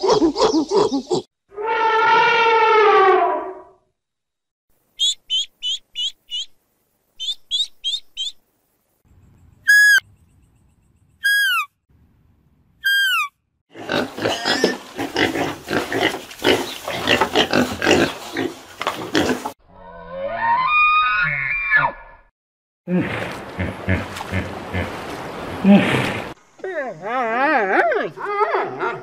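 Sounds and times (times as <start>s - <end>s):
deer calling: 9.6s - 10.0s, 11.2s - 11.7s, 12.8s - 13.3s
pigs grunting: 13.7s - 19.6s, 22.9s - 25.0s.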